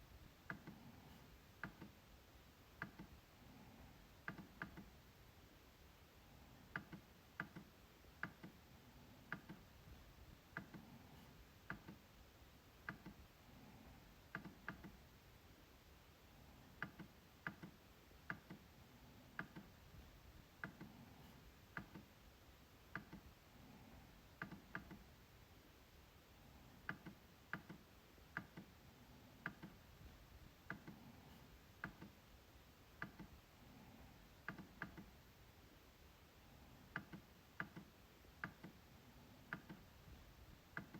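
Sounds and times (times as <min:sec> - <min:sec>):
trackpad clicks: 0:01.6 - 0:02.0, 0:02.8 - 0:03.2, 0:04.2 - 0:04.9, 0:06.7 - 0:08.6, 0:09.3 - 0:09.7, 0:10.5 - 0:12.0, 0:12.8 - 0:13.2, 0:14.3 - 0:15.0, 0:16.8 - 0:18.7, 0:19.3 - 0:19.8, 0:22.9 - 0:23.3, 0:24.4 - 0:25.1, 0:26.8 - 0:28.8, 0:29.4 - 0:29.8, 0:31.8 - 0:32.2, 0:33.0 - 0:33.4, 0:34.4 - 0:35.1, 0:36.9 - 0:38.8.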